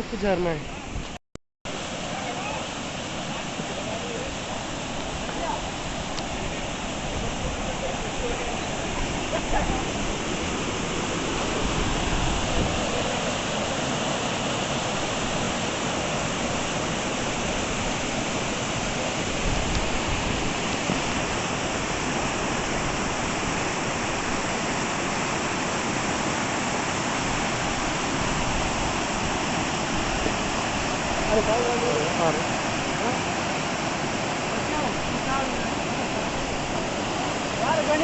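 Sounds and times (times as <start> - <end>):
small waterfall rushing: 0.0 - 38.0.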